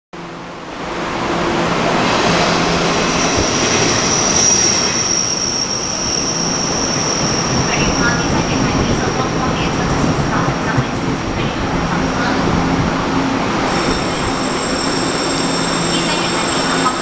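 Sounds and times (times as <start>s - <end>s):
train running noise: 0.2s - 17.0s
high wheel squeal: 3.0s - 8.3s, 13.7s - 17.0s.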